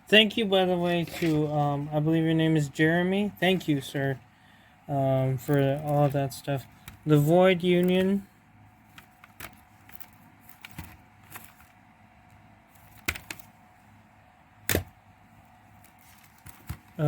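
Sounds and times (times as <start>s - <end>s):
plastic cases clicking and clacking: 12.8s - 13.5s.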